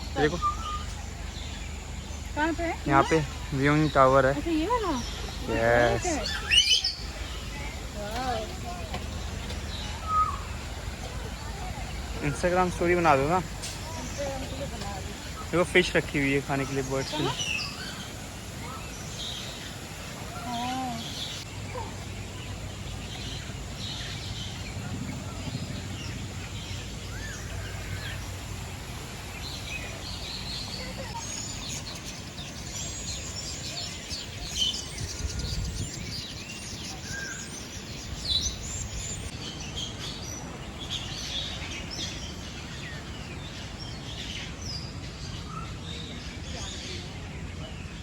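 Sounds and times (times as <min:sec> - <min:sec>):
birds chirping and calling: 0:00.0 - 0:48.0
steady low hum: 0:17.8 - 0:34.3.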